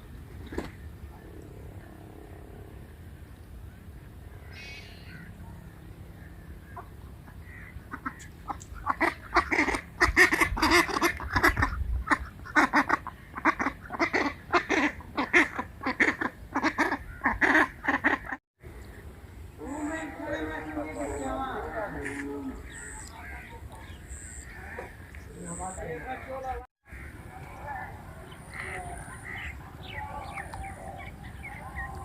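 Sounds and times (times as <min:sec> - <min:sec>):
ducks quacking: 0:06.2 - 0:18.4, 0:19.6 - 0:32.0.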